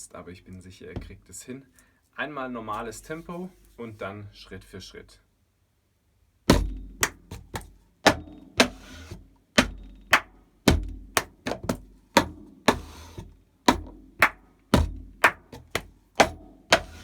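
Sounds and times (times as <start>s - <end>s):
slaps on a tabletop: 6.5s - 8.9s, 9.6s - 13.0s, 13.7s - 17.0s
hand claps: 7.0s - 7.3s, 10.1s - 10.3s, 11.2s - 12.8s, 13.7s - 14.4s, 15.2s - 17.0s.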